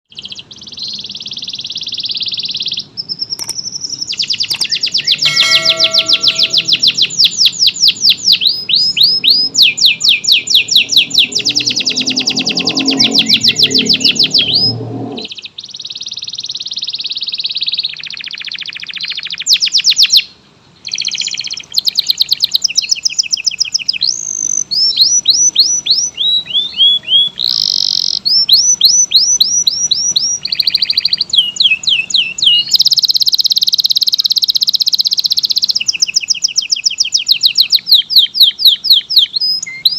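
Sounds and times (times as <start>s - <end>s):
canary singing trills: 0.1s - 39.9s
low rumble: 11.4s - 15.3s.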